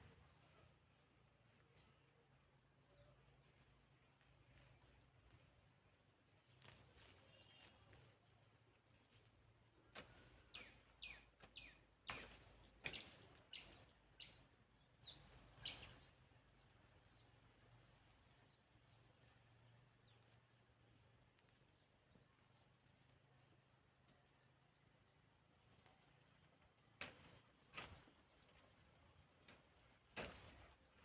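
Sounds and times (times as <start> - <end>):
bird chirping: 10.5 - 19.4.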